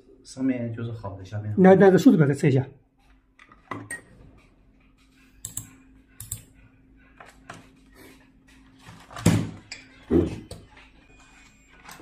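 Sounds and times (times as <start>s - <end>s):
test probes clicking and tapping: 5.4s - 6.5s.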